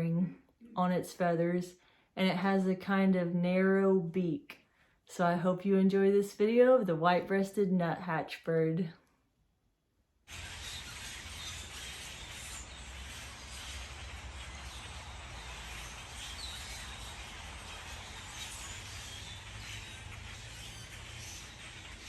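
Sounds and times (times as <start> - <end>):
faint bird chirps: 10.3 - 22.0.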